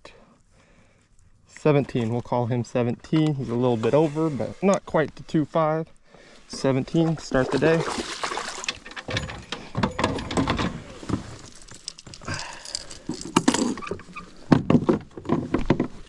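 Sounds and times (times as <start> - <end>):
fishing gear knocking and rattling: 8.4 - 16.0.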